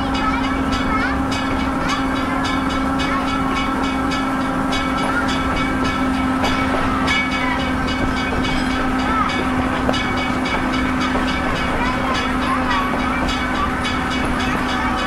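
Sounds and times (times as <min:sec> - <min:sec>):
train interior hum: 0:00.0 - 0:15.0
wheels clicking on rails: 0:00.0 - 0:15.0.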